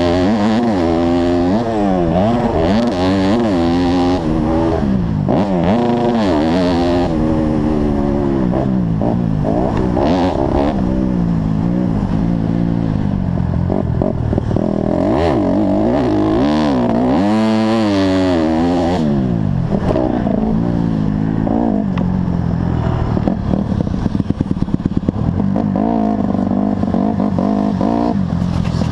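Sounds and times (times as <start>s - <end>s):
motorcycle engine revving: 0.0s - 28.9s.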